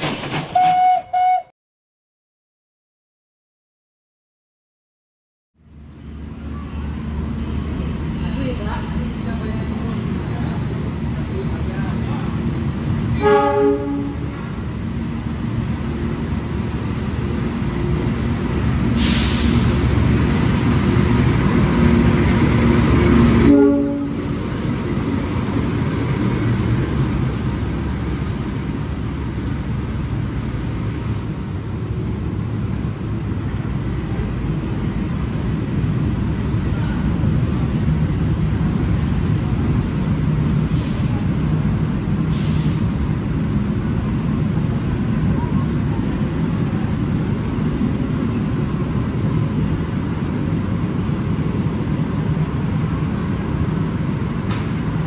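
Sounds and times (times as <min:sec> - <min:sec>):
locomotive engine and wheels: 0:00.0 - 0:01.5, 0:05.6 - 0:55.0
train horn: 0:00.6 - 0:01.5, 0:13.1 - 0:14.4, 0:23.4 - 0:24.4.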